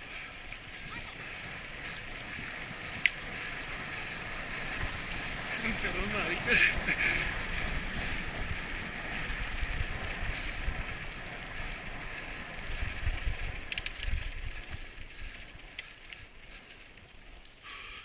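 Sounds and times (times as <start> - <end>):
wind rumble on microphone: 0.0 - 17.4
bicycle tyres rolling on rough road: 0.0 - 18.0
short clatter of clicks: 13.7 - 14.3.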